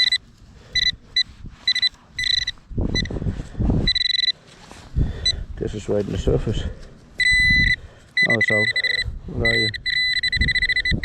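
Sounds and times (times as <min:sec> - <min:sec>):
metal detector beeping: 0:00.0 - 0:03.2, 0:03.8 - 0:04.4, 0:07.2 - 0:11.0
dirt and grass scraping: 0:00.0 - 0:05.0.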